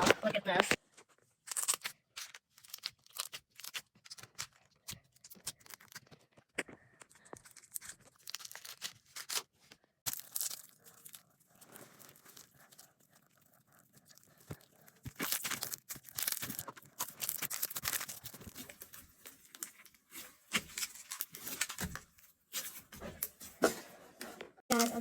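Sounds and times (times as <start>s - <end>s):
slime crackling and popping: 1.4s - 11.8s, 14.0s - 19.8s.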